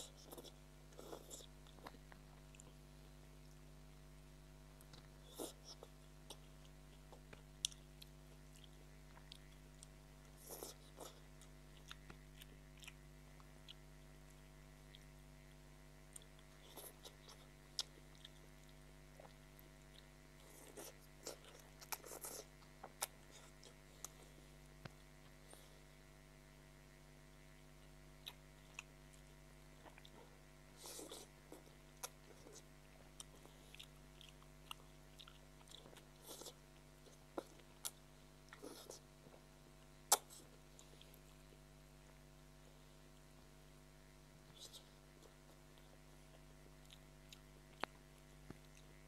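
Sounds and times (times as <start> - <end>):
chewing and wet mouth sounds: 0.0 - 26.0, 27.2 - 42.3, 44.4 - 49.0
faint steady hum: 0.0 - 49.0
soft mouth clicks and smacks: 40.1 - 41.3, 44.5 - 49.0.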